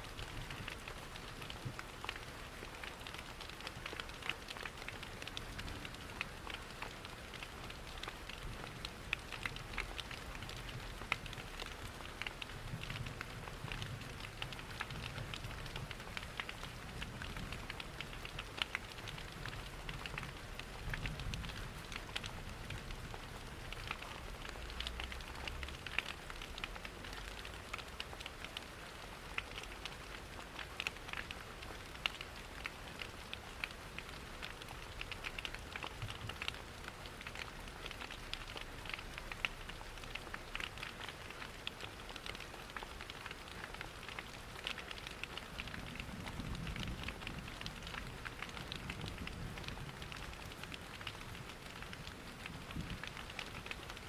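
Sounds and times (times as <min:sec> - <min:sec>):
steady rain pattering: 0:00.0 - 0:54.0
wood fire crackling: 0:00.1 - 0:54.0.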